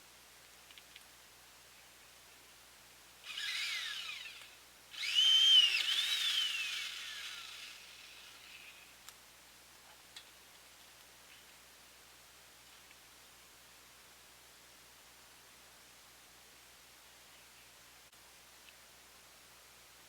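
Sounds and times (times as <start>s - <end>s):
chainsaw revving: 3.3s - 8.8s.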